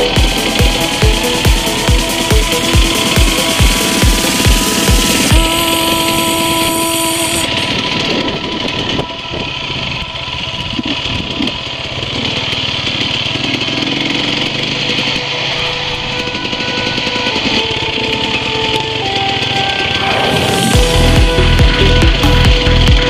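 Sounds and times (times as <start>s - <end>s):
electronic music: 0.0s - 7.7s, 19.4s - 23.0s
dirt bike engine: 0.0s - 23.0s
steady rushing noise: 0.0s - 23.0s.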